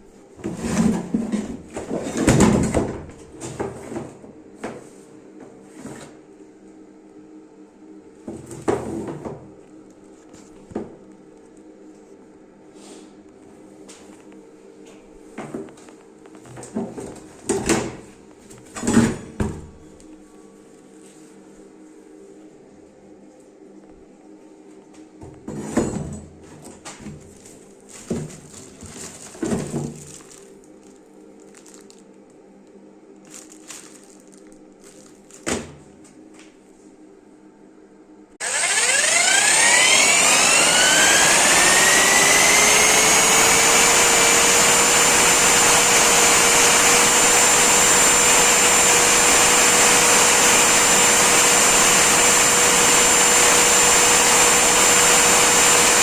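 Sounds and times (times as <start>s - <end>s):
electric mixer motor whine: 38.4s - 56.0s.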